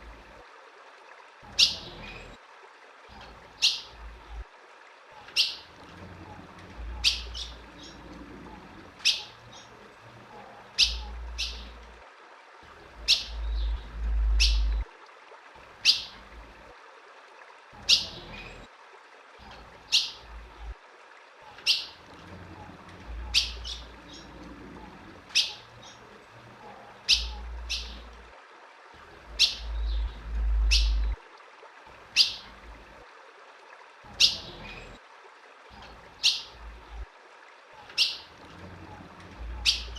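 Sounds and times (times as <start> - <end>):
bird chip calls: 10.8 - 11.8, 13.0 - 14.8, 23.3 - 24.3, 25.3 - 26.0, 27.0 - 28.1, 29.4 - 31.2, 32.2 - 32.5, 36.2 - 36.6, 39.5 - 39.9
low rumble: 29.6 - 31.2.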